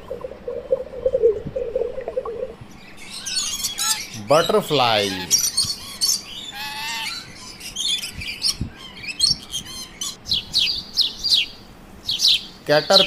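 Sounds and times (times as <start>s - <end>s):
downward-sliding bird notes: 0.0s - 6.1s
small birds chirping: 0.0s - 13.0s.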